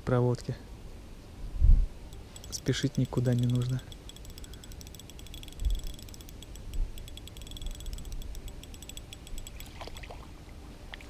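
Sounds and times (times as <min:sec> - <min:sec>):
fishing reel ticking: 0:02.1 - 0:10.1.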